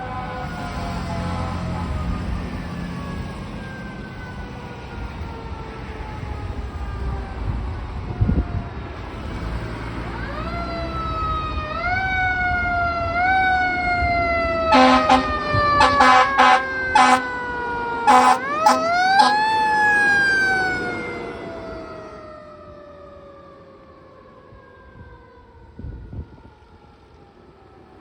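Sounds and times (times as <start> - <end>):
fire engine siren wailing: 0.0 - 28.0
air horn blasts: 14.7 - 17.4, 18.0 - 19.6.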